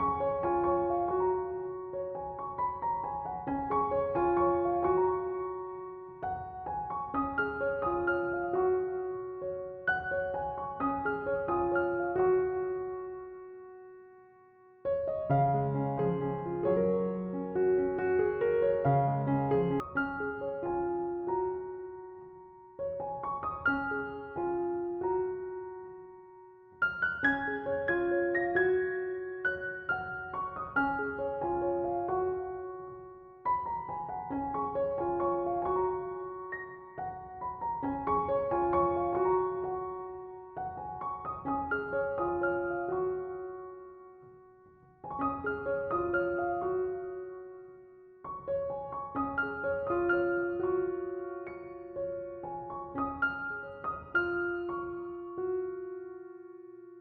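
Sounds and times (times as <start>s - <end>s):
soft solo piano music: 0.0s - 57.0s.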